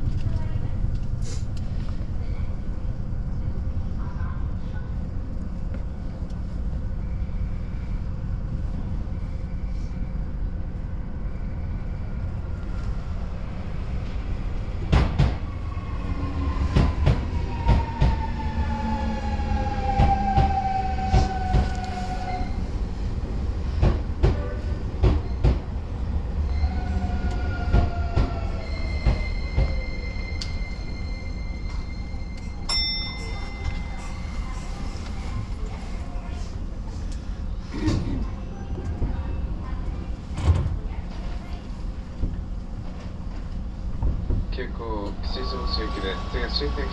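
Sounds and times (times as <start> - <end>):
electric train humming: 0.0 - 37.6.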